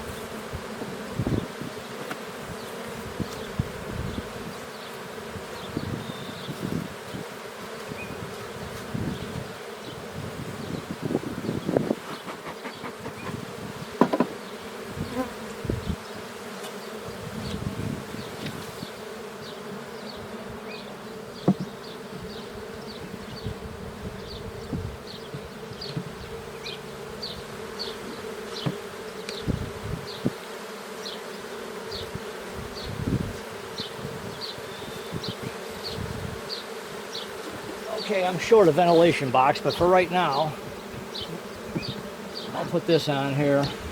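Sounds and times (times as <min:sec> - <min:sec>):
honey bees buzzing: 0:00.0 - 0:43.9
wooden frames knocking: 0:14.0 - 0:14.4, 0:21.4 - 0:21.7.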